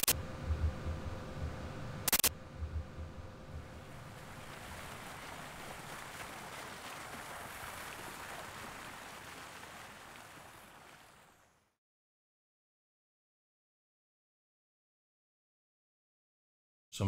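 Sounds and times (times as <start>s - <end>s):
rushing ambient noise: 0.0s - 7.4s.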